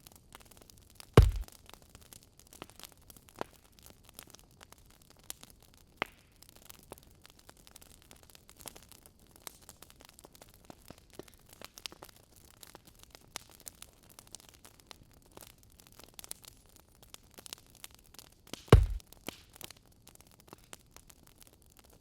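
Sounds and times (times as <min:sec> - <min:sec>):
wood fire crackling and popping: 0:00.2 - 0:22.0.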